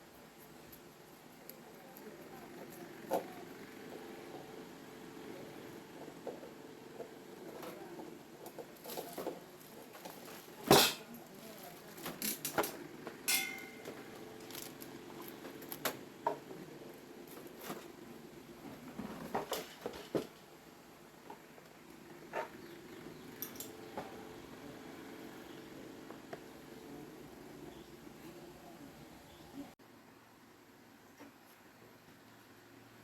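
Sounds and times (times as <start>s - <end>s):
metallic clink: 13.3s - 13.9s.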